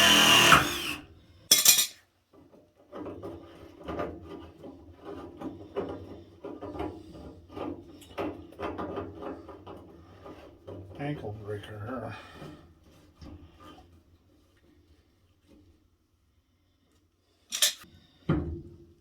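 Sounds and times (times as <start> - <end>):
power drill: 0.0 - 1.1
tools and metal parts clattering: 1.5 - 2.0, 17.5 - 17.8.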